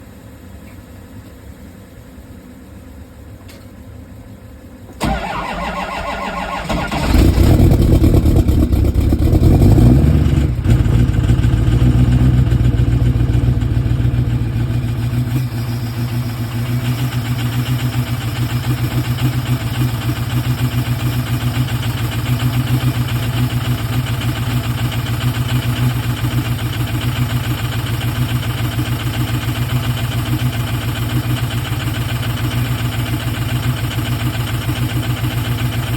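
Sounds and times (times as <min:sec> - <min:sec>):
diesel engine starting and idling: 0:04.9 - 0:35.9
starter motor cranking: 0:05.0 - 0:08.2.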